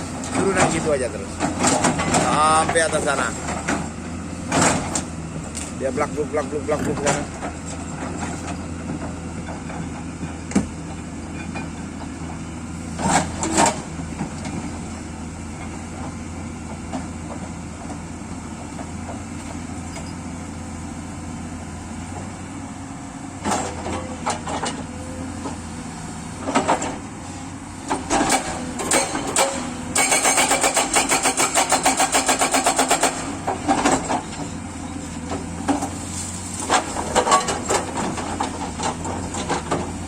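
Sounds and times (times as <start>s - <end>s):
excavator diesel engine running: 0.0s - 40.0s
bucket scraping and clunking rocks: 35.4s - 40.0s.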